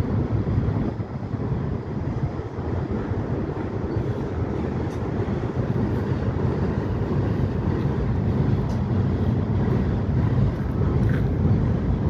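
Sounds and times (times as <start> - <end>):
train wheels rumbling on bridge: 0.0 - 12.0.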